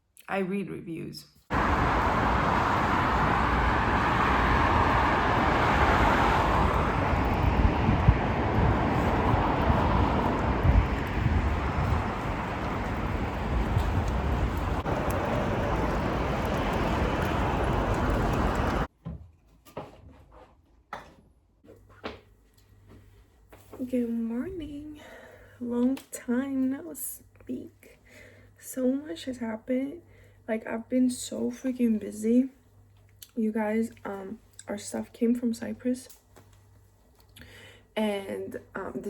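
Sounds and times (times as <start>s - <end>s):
vehicle rushing noise: 1.5s - 18.9s.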